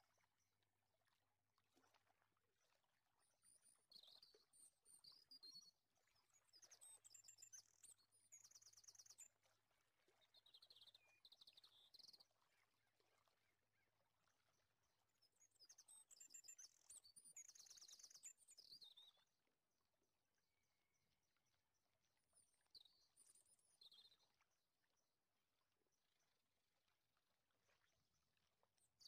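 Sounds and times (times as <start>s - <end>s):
faint bird chirping: 3.4s - 19.3s, 22.3s - 24.6s.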